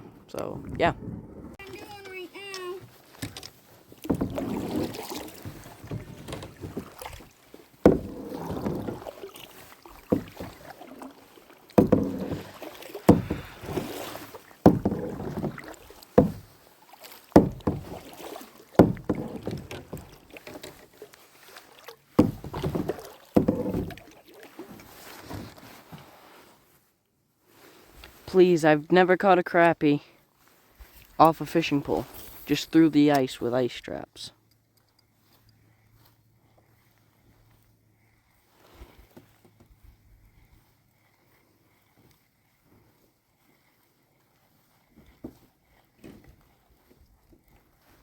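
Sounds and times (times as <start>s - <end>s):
paddle knock: 0.0s - 26.1s
paddle stroking through water: 0.0s - 29.0s, 30.3s - 34.0s, 35.0s - 48.0s.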